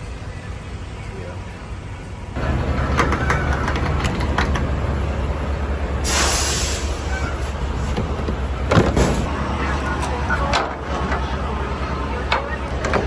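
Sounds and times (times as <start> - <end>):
diesel truck engine running: 0.0 - 13.0
air hiss: 6.0 - 7.6.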